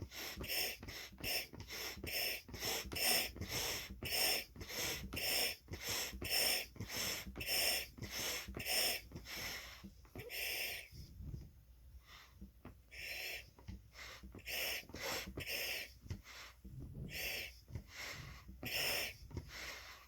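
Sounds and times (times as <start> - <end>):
puffs of air blowing up balloon: 12.9 - 20.0.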